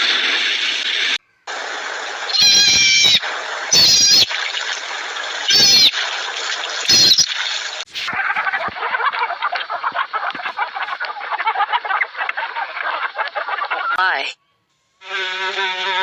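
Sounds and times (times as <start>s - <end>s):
steady background hiss: 0.0s - 6.7s
animal meow-like calls: 2.3s - 4.4s, 5.4s - 6.0s, 6.9s - 7.3s.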